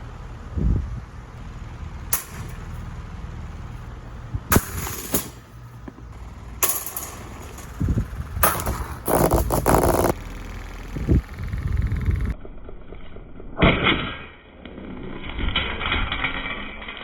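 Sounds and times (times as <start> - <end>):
low steady hum: 0.0 - 13.6
crunching rattling crash: 1.5 - 12.8
hard blows cracking plastic: 6.0 - 11.3.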